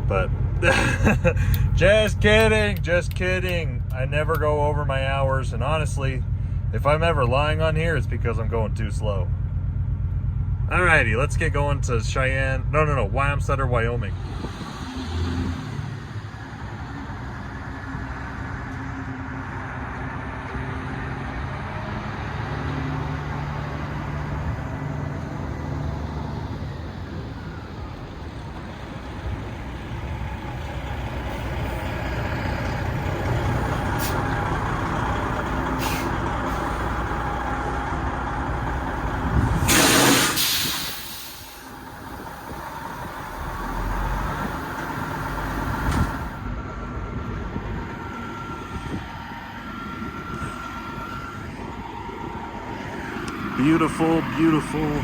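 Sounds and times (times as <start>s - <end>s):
road noise: 0.0s - 55.0s
semi truck engine running: 0.0s - 55.0s
air brake hiss: 35.8s - 36.7s, 39.5s - 41.8s.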